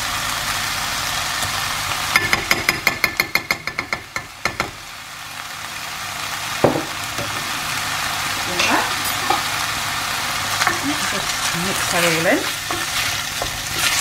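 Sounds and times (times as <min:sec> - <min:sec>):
chicken sizzling in a pan: 0:00.0 - 0:14.0
spoon tapping against a pan: 0:02.1 - 0:04.8.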